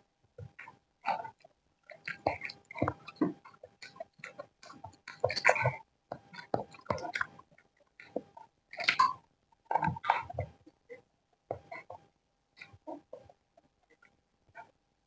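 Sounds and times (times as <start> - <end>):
close chewing with mouth clicks: 0.4 - 10.7.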